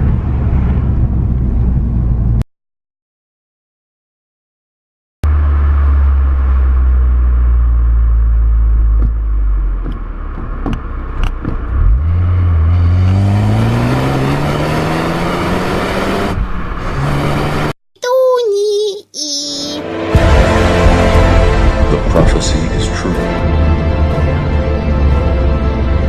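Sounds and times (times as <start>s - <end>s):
car engine accelerating: 5.2s - 17.8s.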